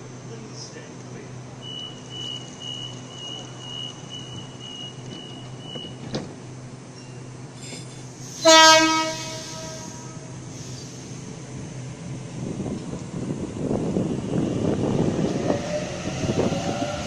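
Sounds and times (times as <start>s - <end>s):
steady train hum: 0.0s - 17.0s
door-closing warning beeps: 1.6s - 6.2s
train doors shutting knock: 3.1s - 6.6s
train horn blast: 8.4s - 10.5s.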